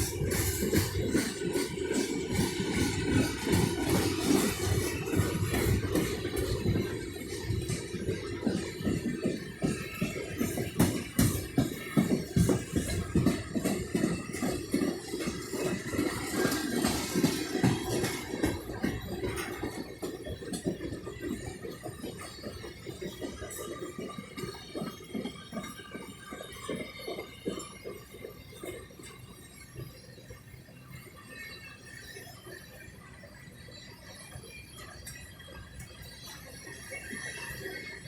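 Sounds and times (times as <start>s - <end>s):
train wheel clicks and car clanks: 0.0s - 29.3s.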